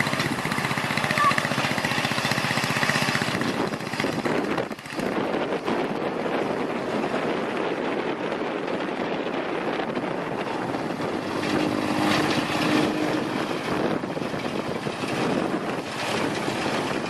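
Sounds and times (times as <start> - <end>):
small engine running: 0.0 - 17.0
steady pitched tone: 10.5 - 14.6.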